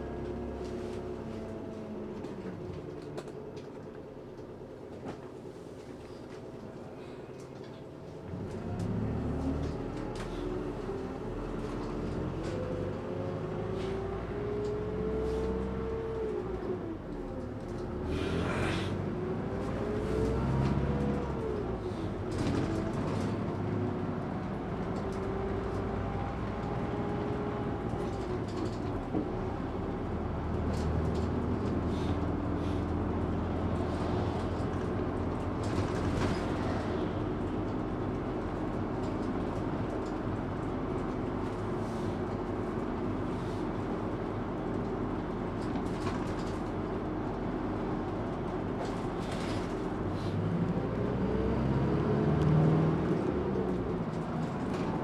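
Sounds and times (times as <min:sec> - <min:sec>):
train running on rails: 0:31.6 - 0:40.6.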